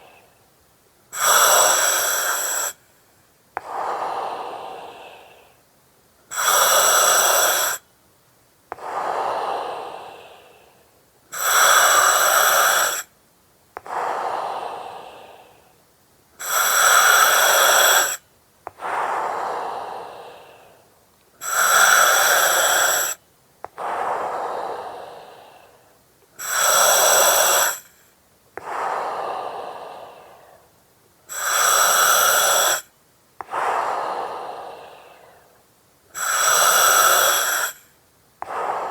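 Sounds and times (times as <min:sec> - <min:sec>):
soft breath out: 0:01.2 - 0:05.7, 0:08.7 - 0:13.1, 0:13.8 - 0:15.8, 0:16.4 - 0:35.6, 0:36.2 - 0:38.9
gas hissing through mask valve: 0:11.3 - 0:13.1, 0:26.4 - 0:28.0, 0:31.3 - 0:32.9, 0:36.2 - 0:37.8.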